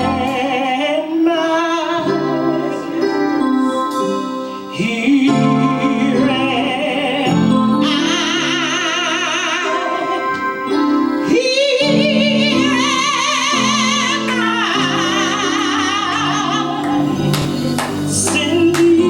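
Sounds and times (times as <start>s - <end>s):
instrumental accompaniment: 0.0s - 19.0s
person singing with vibrato: 0.0s - 19.0s.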